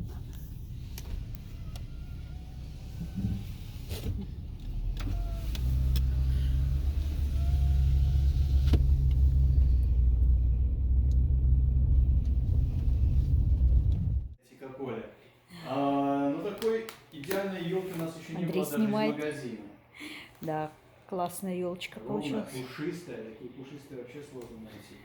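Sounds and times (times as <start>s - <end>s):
car engine and road rumble: 0.0s - 14.4s.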